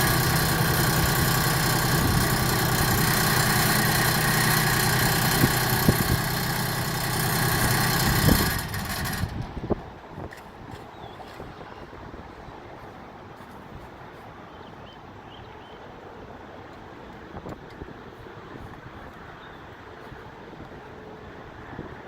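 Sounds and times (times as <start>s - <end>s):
diesel tractor engine idling: 0.0s - 9.6s.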